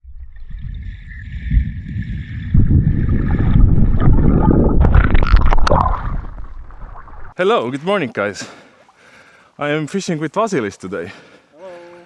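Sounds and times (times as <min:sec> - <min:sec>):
low rumbling water: 0:00.0 - 0:12.0
wind buffeting the microphone: 0:00.8 - 0:06.8
sharp knocks or splashes: 0:01.5 - 0:09.2.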